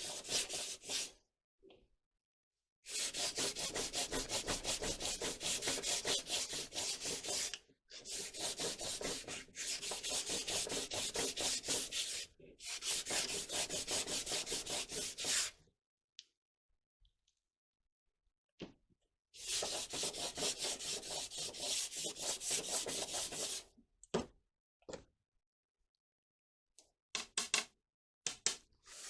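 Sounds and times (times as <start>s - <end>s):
hand sanding with sandpaper: 0.0s - 1.1s, 2.9s - 15.5s, 19.4s - 23.6s.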